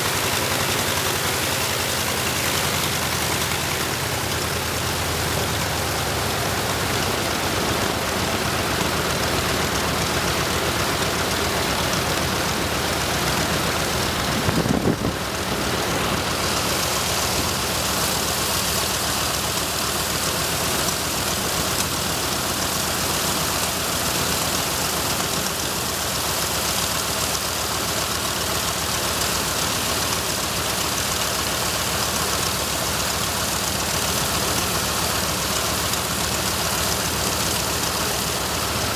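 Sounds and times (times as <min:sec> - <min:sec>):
radial aircraft engine running: 0:00.0 - 0:38.9.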